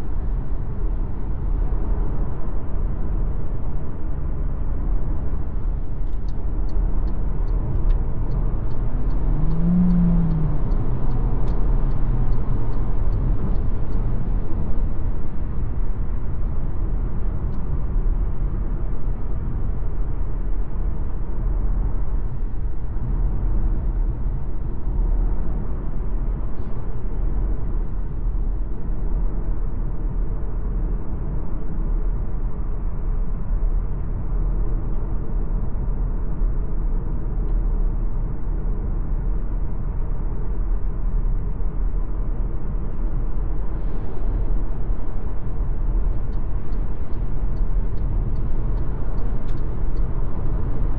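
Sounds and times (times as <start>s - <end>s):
tyre and drivetrain rumble: 7.9s - 14.7s.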